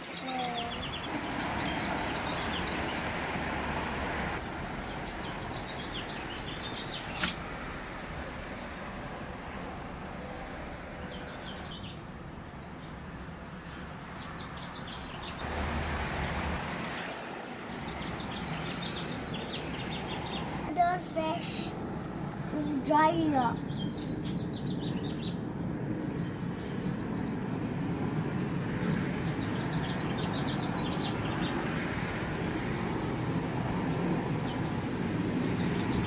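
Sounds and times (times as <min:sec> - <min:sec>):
small birds chirping: 0:00.0 - 0:03.1, 0:04.8 - 0:07.5, 0:17.0 - 0:21.8, 0:22.5 - 0:27.6, 0:28.8 - 0:31.7
sharp click: 0:07.1 - 0:07.4.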